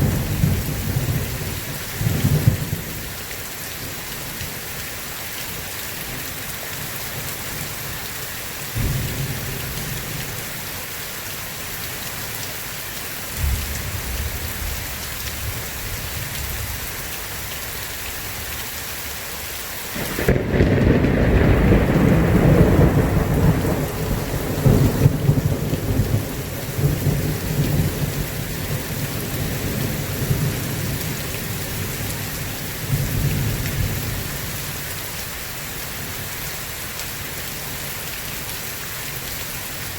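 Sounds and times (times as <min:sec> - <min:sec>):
heavy rain: 0:00.0 - 0:39.9
rolling thunder: 0:20.0 - 0:31.2.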